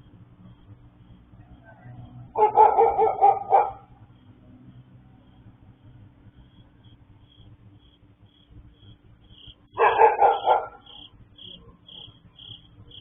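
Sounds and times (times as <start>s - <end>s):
dog barking: 2.4s - 3.9s, 9.7s - 11.1s.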